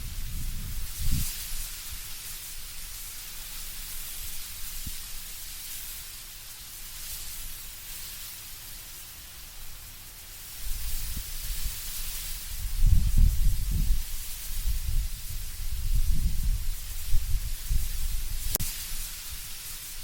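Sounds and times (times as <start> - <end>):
low gusting rumble: 0.0 - 1.3, 12.5 - 18.6
leaves rustling in wind: 0.0 - 20.0.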